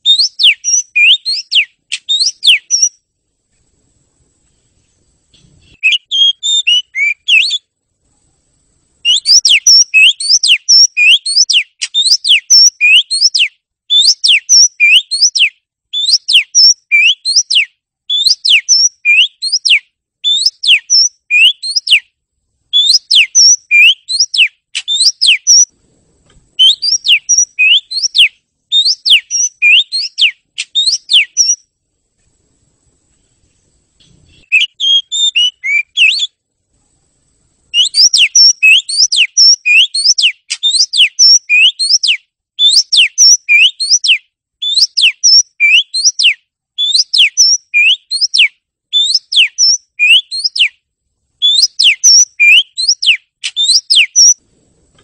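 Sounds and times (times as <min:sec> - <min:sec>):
bird singing whistled notes: 0:00.0 - 0:03.0, 0:05.4 - 0:07.7, 0:09.0 - 0:22.1, 0:22.7 - 0:25.7, 0:26.6 - 0:31.7, 0:34.0 - 0:36.4, 0:37.7 - 0:50.8, 0:51.4 - 0:54.4.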